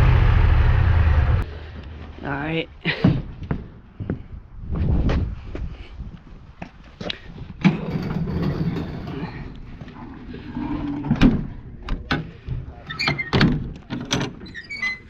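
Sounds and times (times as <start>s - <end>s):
low rumble: 0.0s - 2.3s.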